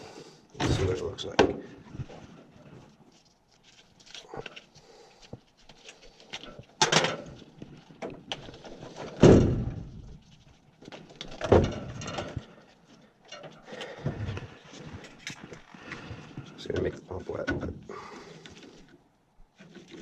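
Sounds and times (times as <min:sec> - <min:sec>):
loud thumps: 0:00.6 - 0:01.2.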